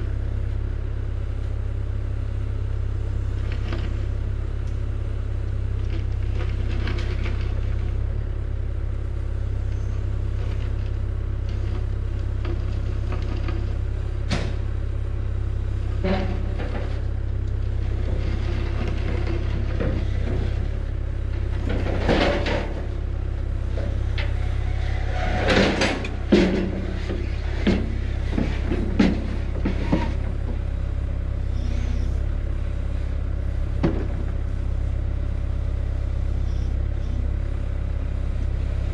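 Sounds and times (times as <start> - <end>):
vehicle engine droning: 0.0 - 38.9
sharp knocks and rattles: 23.7 - 30.6.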